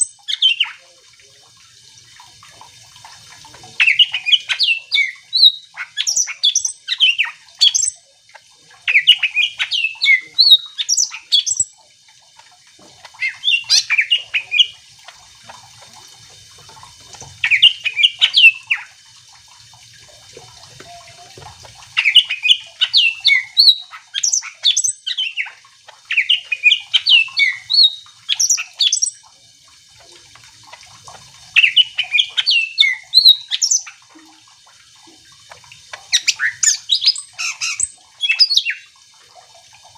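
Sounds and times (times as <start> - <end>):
bird chattering and whistling: 3.8 - 8.0, 8.9 - 11.7, 13.2 - 14.8, 17.4 - 18.9, 22.0 - 29.2, 31.6 - 34.0, 36.1 - 38.9.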